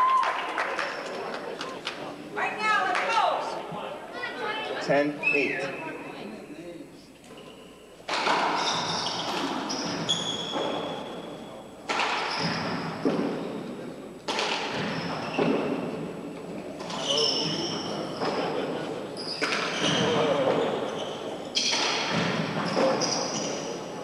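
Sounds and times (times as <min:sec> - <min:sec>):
handball smacking walls: 0:11.9 - 0:13.6, 0:21.6 - 0:23.6.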